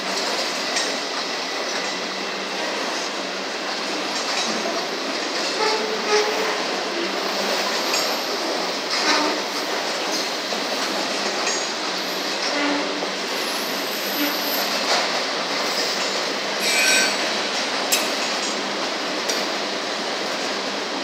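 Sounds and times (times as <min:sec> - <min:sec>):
freight train wheels on rail: 0:00.0 - 0:21.0
wheel squeal: 0:13.5 - 0:14.8, 0:16.6 - 0:17.3.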